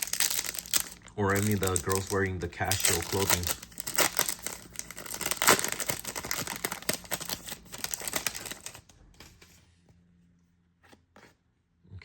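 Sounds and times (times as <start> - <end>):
foil pack crinkling: 0.0 - 8.9.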